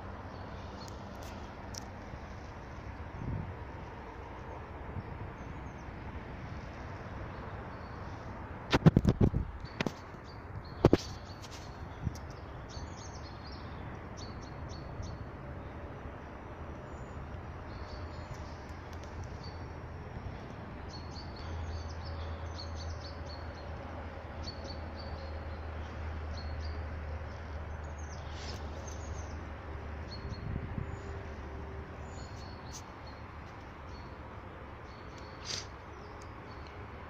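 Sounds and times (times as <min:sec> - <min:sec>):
small birds chirping: 0:24.4 - 0:31.4, 0:32.0 - 0:36.9.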